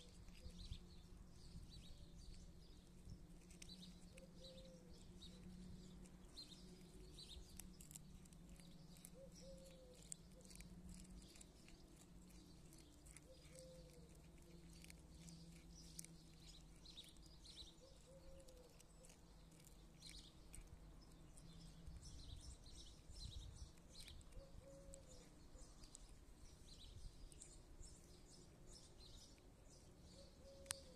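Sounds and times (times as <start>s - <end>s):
small birds chirping: 0.0s - 30.9s
low cooing bird call: 4.1s - 5.6s, 9.0s - 10.7s, 13.3s - 14.2s, 17.8s - 19.2s, 24.0s - 25.9s, 30.1s - 30.9s.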